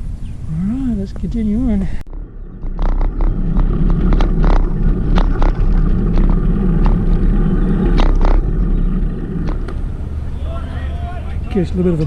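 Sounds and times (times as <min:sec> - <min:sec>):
wind buffeting microphone: 0:00.0 - 0:12.0
bicycle clicks and rattles: 0:02.6 - 0:08.7.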